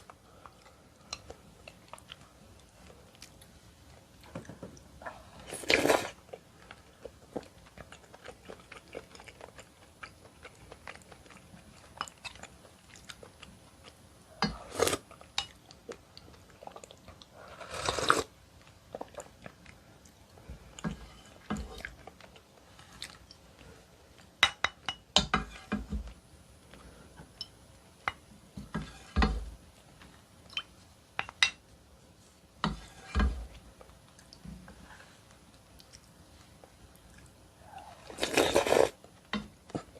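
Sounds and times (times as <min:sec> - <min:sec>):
close-miked chewing: 0:05.0 - 0:20.8.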